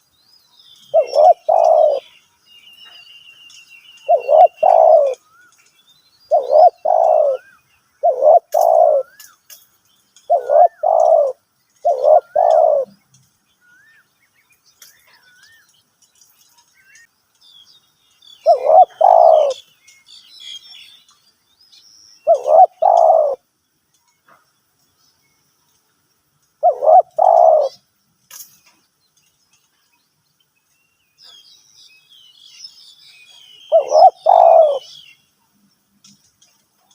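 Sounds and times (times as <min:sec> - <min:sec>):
small birds chirping: 0:00.0 - 0:36.9
dove cooing: 0:00.9 - 0:02.1, 0:04.1 - 0:05.2, 0:06.3 - 0:09.2, 0:10.3 - 0:13.0, 0:18.4 - 0:19.6, 0:22.2 - 0:23.4, 0:26.6 - 0:27.8, 0:33.7 - 0:35.0.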